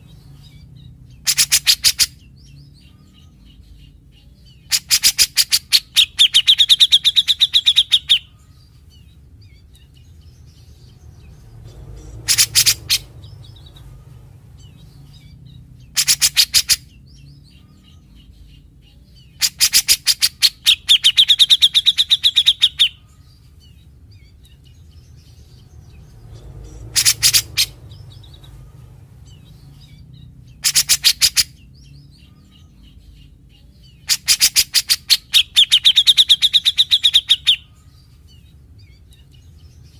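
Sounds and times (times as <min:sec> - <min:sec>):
bird singing rattling phrases: 0:00.0 - 0:39.9.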